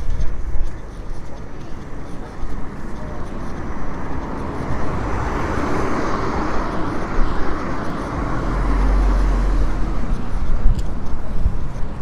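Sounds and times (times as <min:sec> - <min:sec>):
vehicle passing: 0:00.0 - 0:12.0
deep low rumble: 0:04.0 - 0:11.6.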